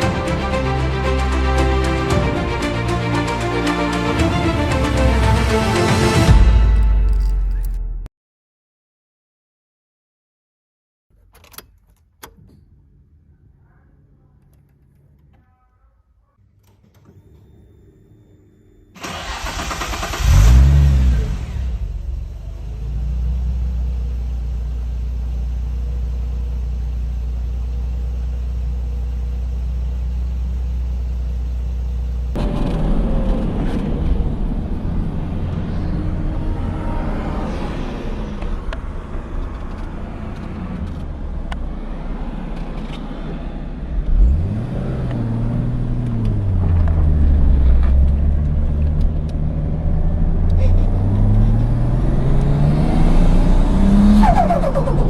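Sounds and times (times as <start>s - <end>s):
car engine revving: 19.0s - 24.4s, 32.3s - 55.0s.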